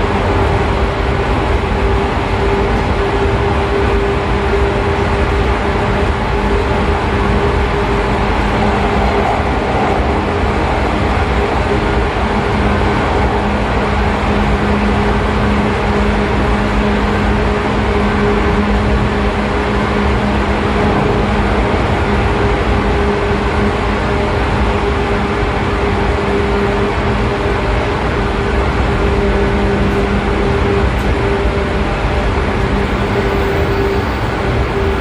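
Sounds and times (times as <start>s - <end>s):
train wheels rumbling on rails: 0.0s - 35.0s
electric train motor hum: 26.3s - 35.0s.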